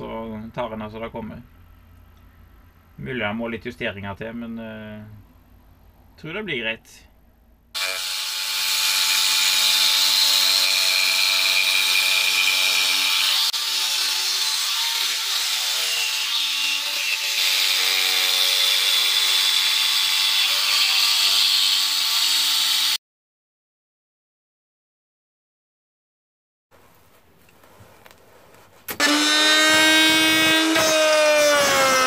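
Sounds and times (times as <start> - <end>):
electric power tool running: 7.8 - 14.1, 29.0 - 32.0.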